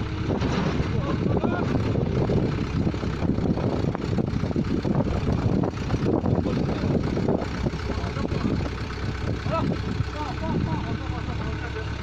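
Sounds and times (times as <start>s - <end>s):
pneumatic drilling rig rumbling: 0.0s - 12.0s.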